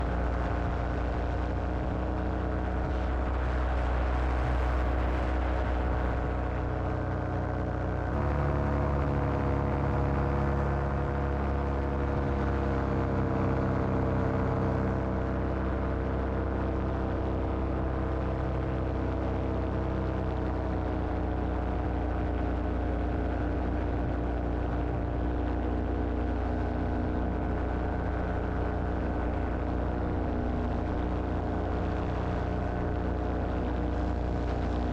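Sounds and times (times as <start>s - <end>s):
paramotor engine and propeller: 0.0s - 34.9s.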